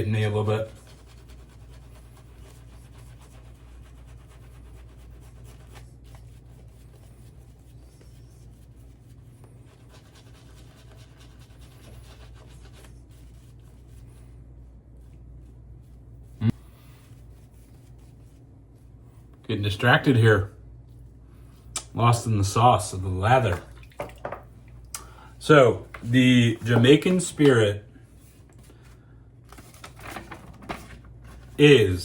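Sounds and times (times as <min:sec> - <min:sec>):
shaving brush scratching lather: 0:00.0 - 0:14.2.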